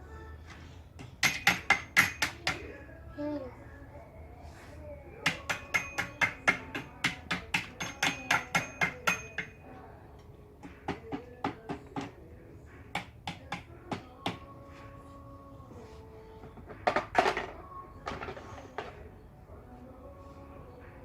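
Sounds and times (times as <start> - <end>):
toy hammer tapping: 1.0 - 2.7, 5.2 - 9.6.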